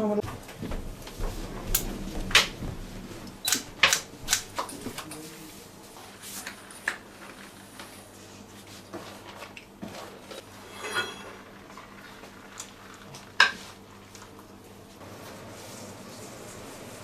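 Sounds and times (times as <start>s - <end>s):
dishes clinking: 10.6s - 11.5s.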